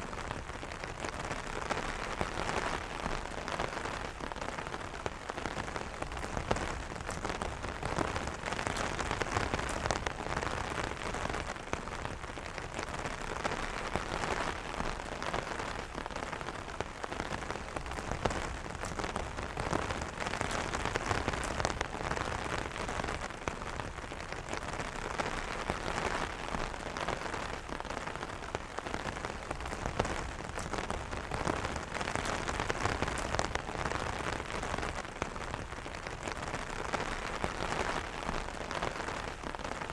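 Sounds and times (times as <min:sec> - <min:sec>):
rain on an umbrella: 0:00.0 - 0:39.9.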